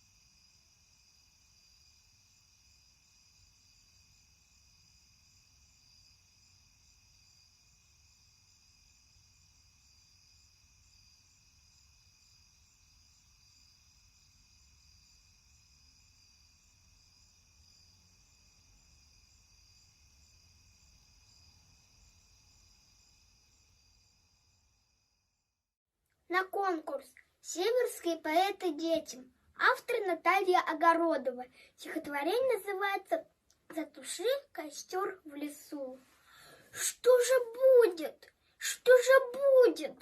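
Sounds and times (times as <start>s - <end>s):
insect chirring: 0.0s - 25.5s.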